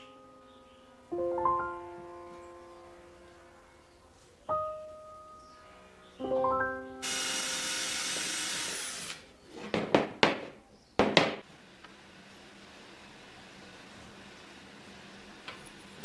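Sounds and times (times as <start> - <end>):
power tool working on wood: 7.0 - 9.3
sharp knocks of wood handling: 9.7 - 11.4.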